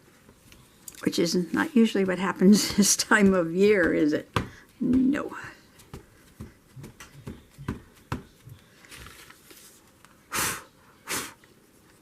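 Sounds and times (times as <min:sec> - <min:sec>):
ink pad tapping on paper: 0:02.0 - 0:08.6.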